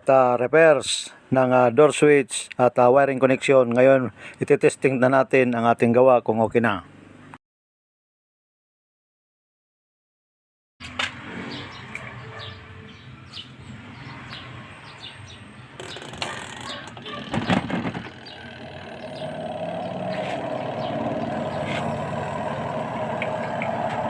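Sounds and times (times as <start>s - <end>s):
birds chirping faintly: 11.4s - 23.7s
knocks and clicks: 15.8s - 18.2s
spin dryer motor humming: 18.1s - 24.0s.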